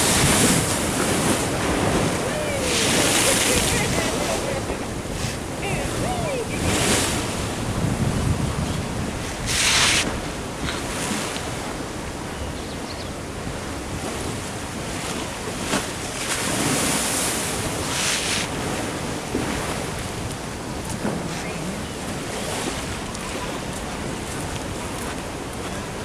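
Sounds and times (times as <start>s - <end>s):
waves splashing against sea wall: 0.0s - 12.3s, 13.2s - 26.0s
wind buffeting microphone: 0.0s - 15.8s.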